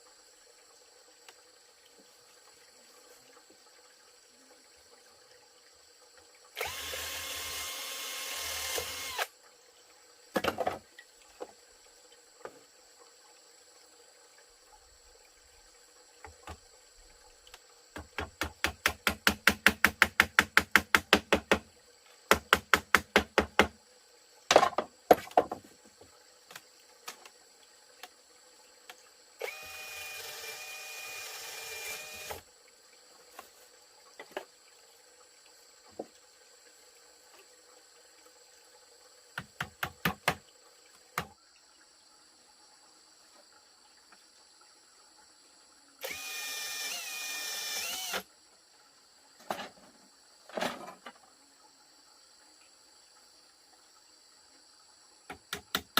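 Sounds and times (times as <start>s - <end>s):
faint high insect chirr: 0.0s - 55.9s
power drill whining: 6.6s - 9.3s, 29.4s - 32.4s, 46.0s - 48.2s.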